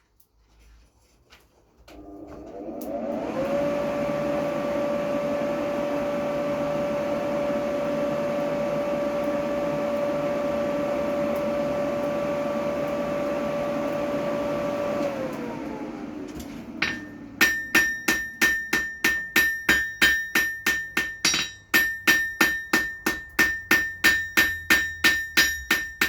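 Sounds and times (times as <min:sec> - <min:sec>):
electric forge blower humming: 0:01.9 - 0:26.0.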